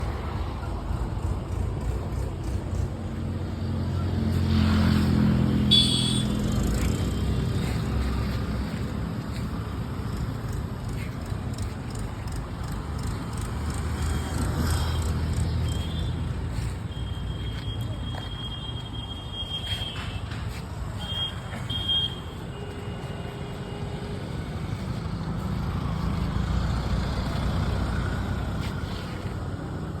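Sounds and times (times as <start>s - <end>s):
motorcycle engine running: 0.0s - 4.5s, 5.3s - 17.7s.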